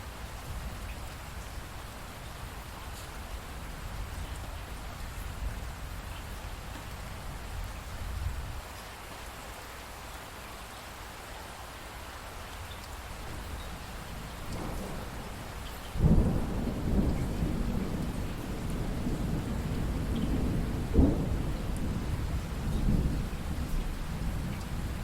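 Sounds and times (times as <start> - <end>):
steady rain falling: 0.0 - 25.0
thunder rumbling: 13.2 - 25.0.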